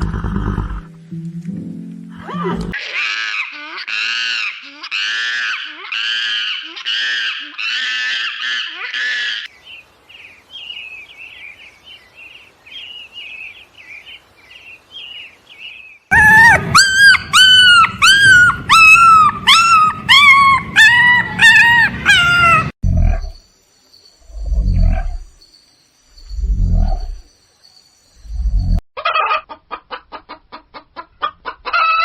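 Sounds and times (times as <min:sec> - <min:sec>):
loud high animal calls: 0:02.2 - 0:09.5, 0:16.1 - 0:23.4.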